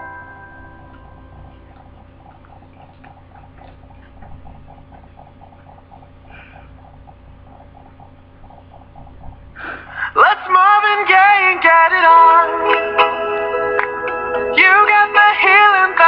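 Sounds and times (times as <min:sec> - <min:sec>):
soft rapid chewing: 0:00.9 - 0:09.6.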